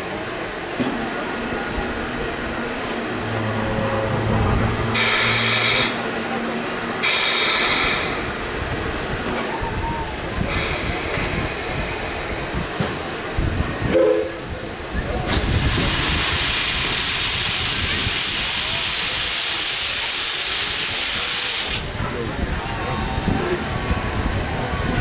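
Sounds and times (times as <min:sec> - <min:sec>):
steam locomotive rumble: 0:00.0 - 0:25.0
steam venting hiss: 0:07.0 - 0:25.0.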